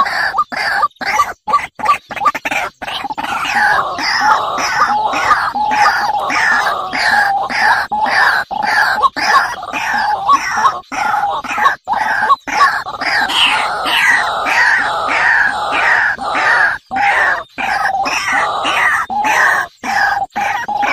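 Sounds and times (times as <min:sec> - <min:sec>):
birds squawking and screeching: 0:00.0 - 0:20.9.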